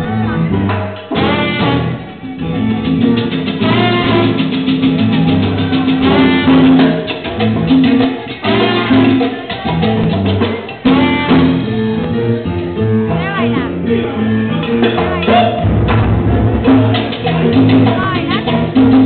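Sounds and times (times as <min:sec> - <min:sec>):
bass line: 0:00.0 - 0:19.0
latin percussion: 0:00.0 - 0:19.0
brass section phrases: 0:01.1 - 0:02.2, 0:03.6 - 0:04.6, 0:06.0 - 0:07.0, 0:08.4 - 0:09.3, 0:10.8 - 0:11.8.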